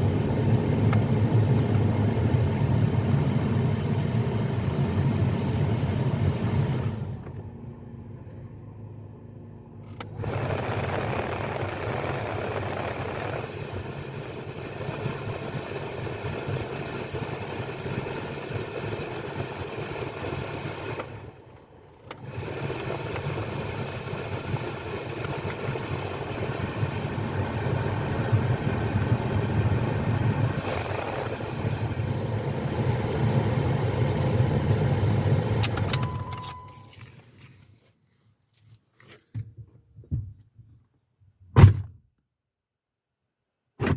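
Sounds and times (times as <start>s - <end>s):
car engine humming: 24.7s - 37.1s.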